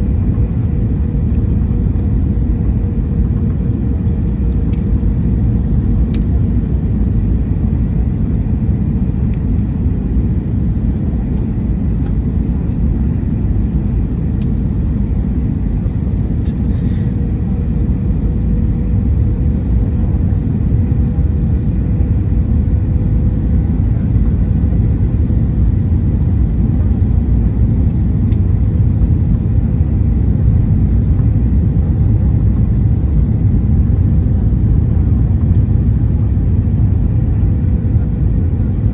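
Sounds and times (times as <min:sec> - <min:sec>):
aircraft cabin engine rumble: 0:00.0 - 0:38.9.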